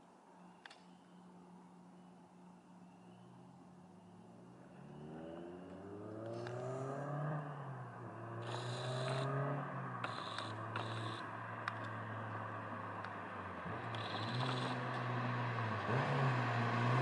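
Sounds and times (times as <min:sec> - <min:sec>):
car engine accelerating: 0:04.1 - 0:17.0.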